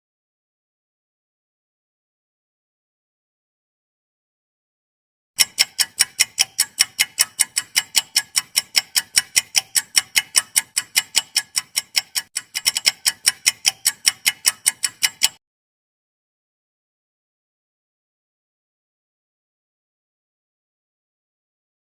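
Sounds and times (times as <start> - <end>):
fast clock ticking: 5.4 - 15.4.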